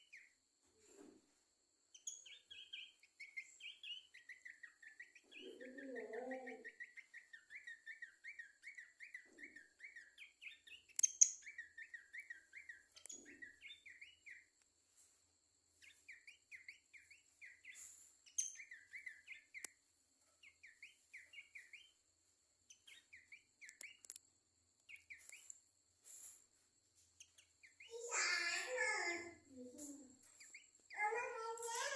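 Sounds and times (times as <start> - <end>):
bird chirping: 0.0 - 31.9
sharp clicks: 23.6 - 24.3.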